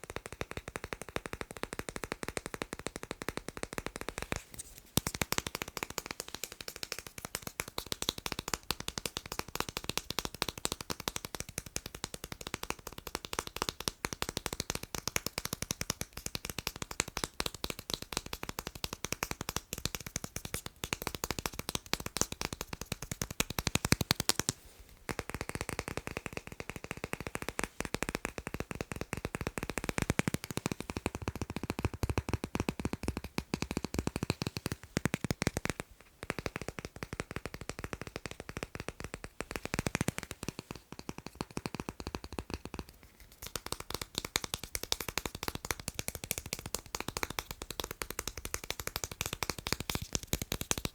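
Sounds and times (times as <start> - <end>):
fast tapping on magnets: 0.0 - 50.9.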